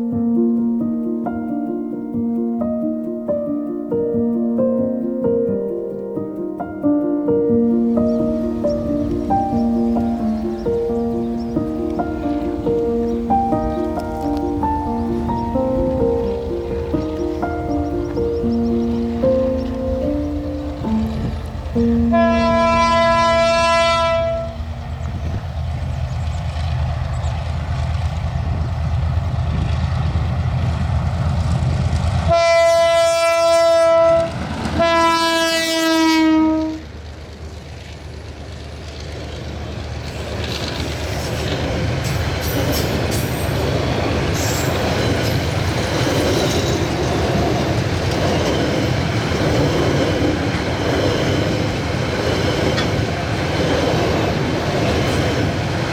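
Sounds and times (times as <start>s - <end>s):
diesel train rumble: 0.0s - 55.9s
train horn blasts: 20.9s - 25.4s, 32.3s - 36.9s
wheels clattering over rails: 36.9s - 55.9s.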